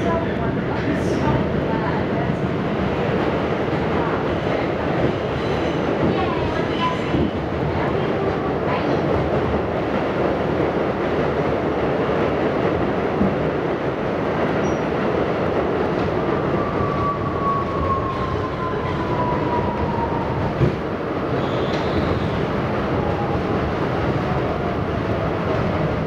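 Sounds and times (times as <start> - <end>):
subway car wheels rumbling: 0.0 - 26.0
faint wheel squeal: 21.4 - 22.4.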